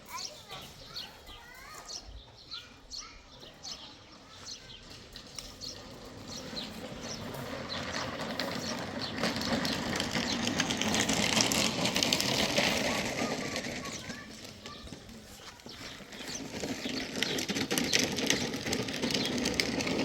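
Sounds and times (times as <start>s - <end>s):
birds chirping: 0.0s - 20.0s
construction machinery rattling: 0.0s - 20.0s.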